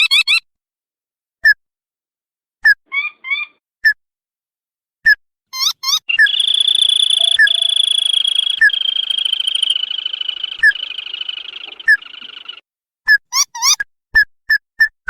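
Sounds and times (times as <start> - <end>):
crake calling with high trill: 5.6 - 12.6
short sharp bird notes: 6.1 - 12.6.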